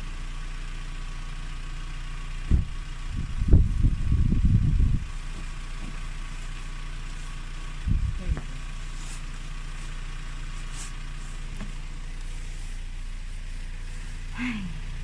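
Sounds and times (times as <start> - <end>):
motor idling hum: 0.0 - 15.0
low rumbling thumps: 2.5 - 6.1, 7.8 - 8.7.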